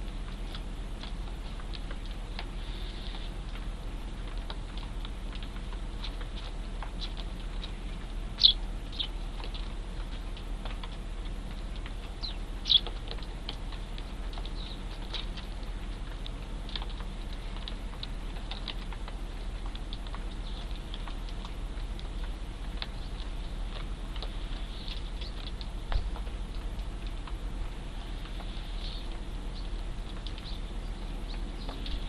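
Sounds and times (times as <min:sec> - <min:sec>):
sparrows chirping: 0:07.0 - 0:09.2, 0:12.2 - 0:13.0, 0:14.4 - 0:15.3, 0:20.4 - 0:20.8, 0:24.6 - 0:25.5, 0:28.6 - 0:29.8, 0:30.4 - 0:32.0.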